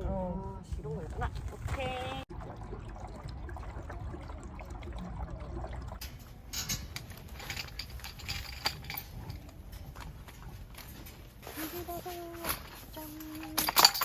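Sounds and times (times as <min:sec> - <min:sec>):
camping gear clicking and clattering: 0:06.0 - 0:14.0.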